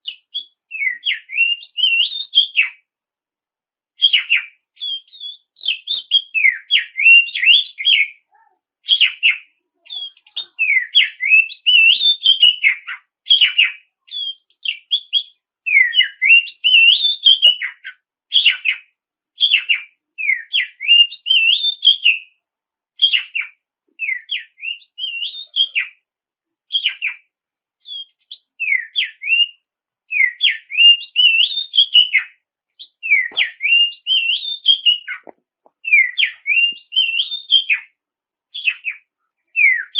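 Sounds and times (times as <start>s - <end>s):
songbird whistling rapid runs: 32.8s - 35.2s, 35.8s - 37.8s.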